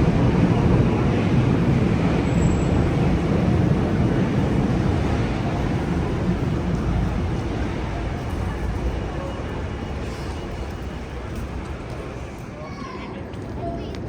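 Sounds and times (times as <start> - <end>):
wind buffeting microphone: 0.0 - 10.0
street traffic: 0.0 - 14.0.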